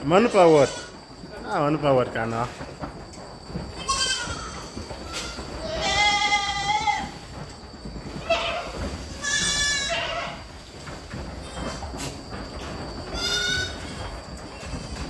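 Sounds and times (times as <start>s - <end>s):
goats bleating: 0.2s - 1.0s, 3.8s - 7.2s, 8.2s - 10.5s, 13.1s - 14.0s.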